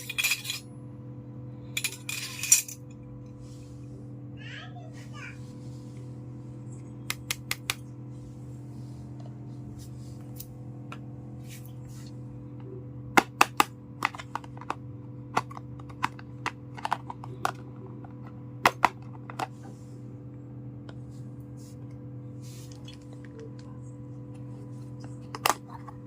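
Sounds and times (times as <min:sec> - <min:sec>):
low hum: 0:00.0 - 0:26.0
toy kitchen pieces clicking: 0:14.0 - 0:17.6.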